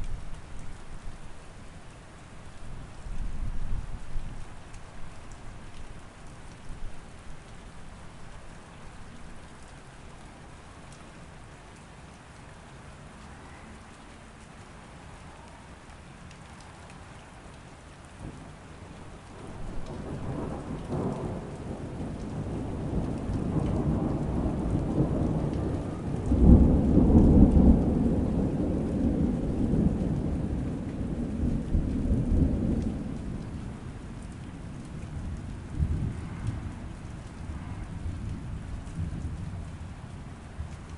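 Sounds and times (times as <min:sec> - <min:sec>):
steady rain: 0:00.0 - 0:40.9
rolling thunder rumble: 0:18.2 - 0:40.8.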